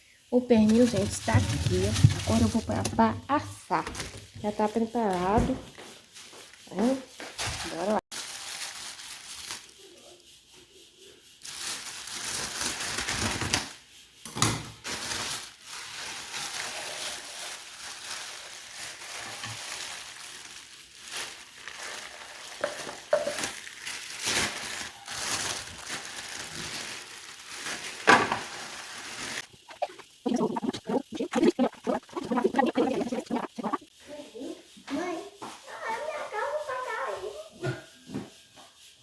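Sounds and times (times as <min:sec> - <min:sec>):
meat sizzling in hot fat: 0:14.4 - 0:33.9.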